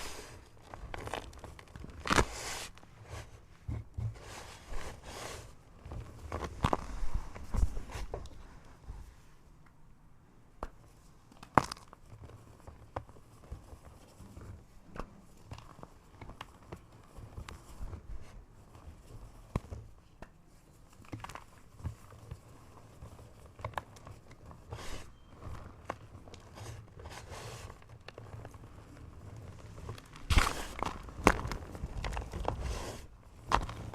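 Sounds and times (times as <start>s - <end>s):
chalk crunching: 20.9s - 33.9s.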